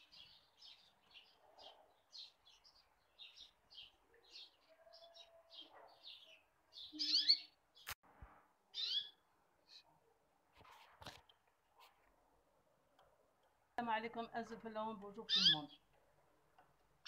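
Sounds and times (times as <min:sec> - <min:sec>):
small birds chirping: 0:00.0 - 0:08.0, 0:08.6 - 0:17.0
louder bird calls: 0:04.3 - 0:07.6, 0:08.7 - 0:09.9, 0:15.3 - 0:15.8.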